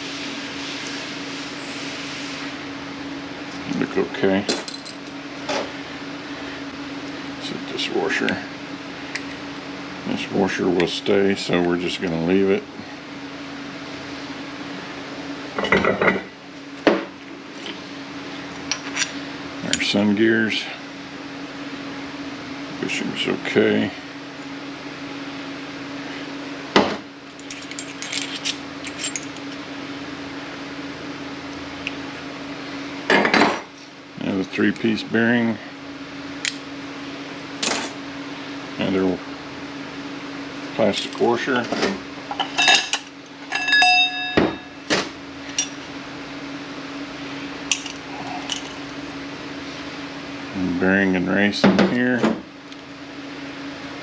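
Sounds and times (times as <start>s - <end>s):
metal parts clinking and knocking: 4.5s - 5.1s, 27.4s - 29.6s, 42.4s - 44.6s, 47.7s - 48.8s
low hum: 42.4s - 50.6s
light metallic clinks: 42.6s - 44.6s.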